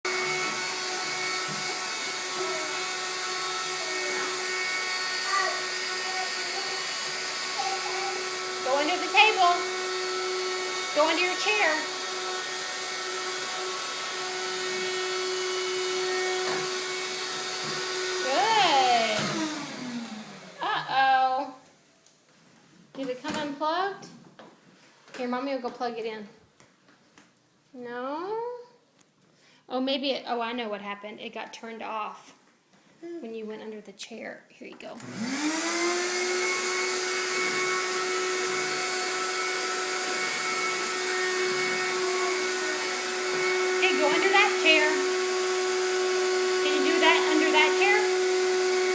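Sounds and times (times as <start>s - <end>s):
vacuum cleaner running: 0.0s - 21.4s, 35.0s - 48.9s.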